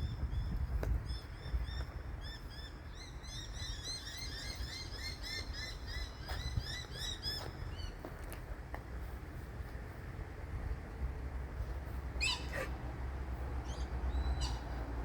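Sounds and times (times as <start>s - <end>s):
small birds chirping: 11.8s - 15.0s.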